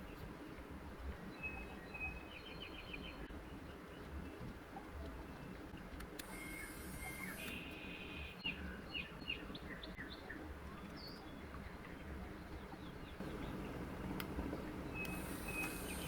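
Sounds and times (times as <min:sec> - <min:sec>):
low steady hum: 0:00.0 - 0:16.0
small birds chirping: 0:05.2 - 0:16.0
faint clicks: 0:13.2 - 0:16.0.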